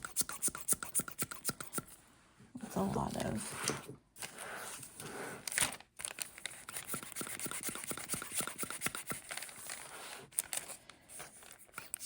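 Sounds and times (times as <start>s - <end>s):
pen nib scratching paper: 0.0s - 2.0s, 6.7s - 9.5s.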